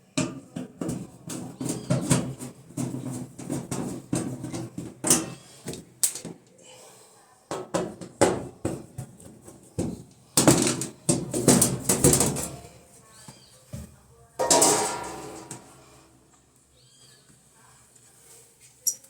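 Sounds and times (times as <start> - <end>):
objects knocking and clattering: 0.1 - 6.4, 7.5 - 12.7, 13.8 - 15.8
rustling and clattering: 0.2 - 6.4, 7.6 - 12.8, 13.7 - 16.4.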